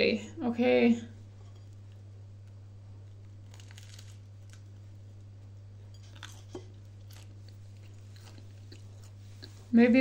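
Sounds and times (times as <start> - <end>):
steady low hum: 0.0 - 10.0
chewing a sandwich: 1.8 - 9.7.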